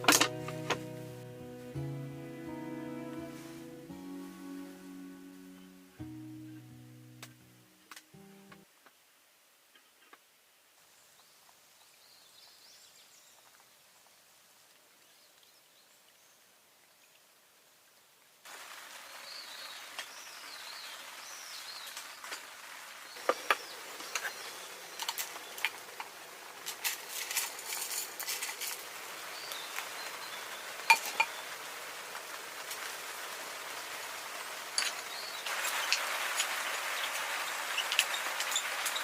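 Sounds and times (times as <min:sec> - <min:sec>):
steady cooking hiss: 0:00.0 - 0:08.2, 0:18.4 - 0:39.0
birds chirping: 0:00.0 - 0:08.6
small crackles: 0:18.4 - 0:39.0.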